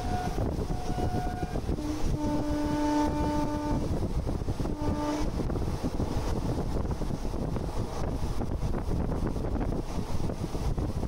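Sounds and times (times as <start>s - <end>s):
horn-like pitched tone: 0.0s - 3.9s, 4.7s - 5.3s
train wheels rumbling: 0.0s - 11.0s
wind buffeting the microphone: 0.0s - 11.0s.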